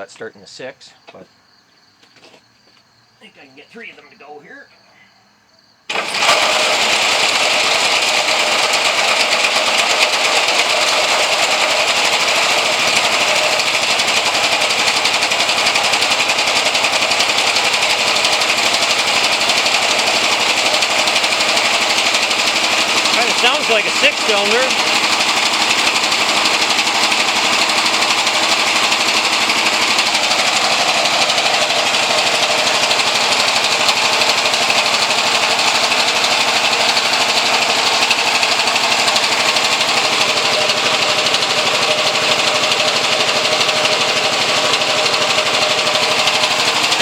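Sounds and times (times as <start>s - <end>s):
engine running with firing rattle: 5.9s - 47.0s.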